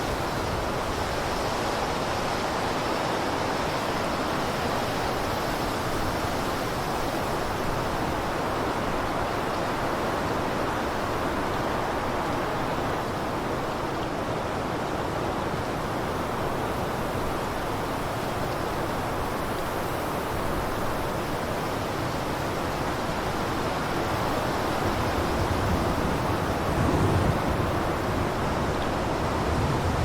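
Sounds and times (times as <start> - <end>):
blizzard wind blowing: 16.2 - 30.0.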